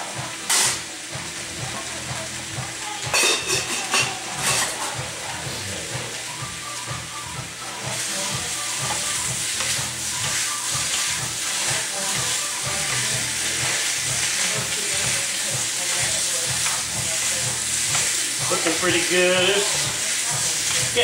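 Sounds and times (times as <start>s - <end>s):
food sizzling in hot oil: 0.0s - 21.0s
stirring in a pan: 7.7s - 21.0s.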